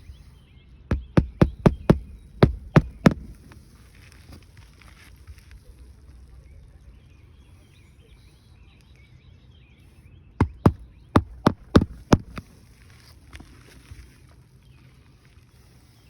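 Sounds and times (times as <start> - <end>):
hammer striking nail: 0.9 - 3.4, 10.4 - 12.4.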